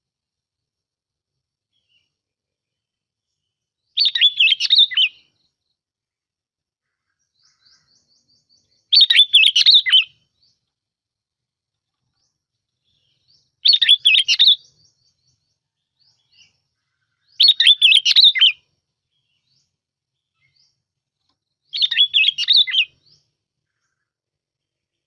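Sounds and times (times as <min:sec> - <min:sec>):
bird whistled song: 0:03.9 - 0:05.6, 0:07.2 - 0:10.6, 0:12.1 - 0:20.8, 0:21.6 - 0:24.0.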